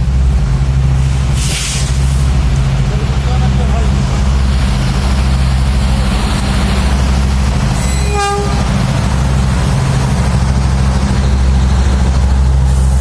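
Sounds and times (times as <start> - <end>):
train rumbling: 0.0 - 13.0
train horn toot: 7.8 - 8.7.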